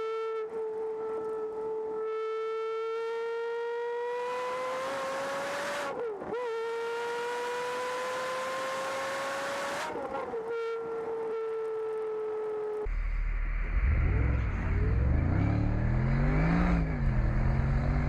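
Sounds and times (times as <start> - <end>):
car engine revving at high revs: 0.7 - 12.8, 13.8 - 18.0
rushing air and road noise: 12.9 - 18.0.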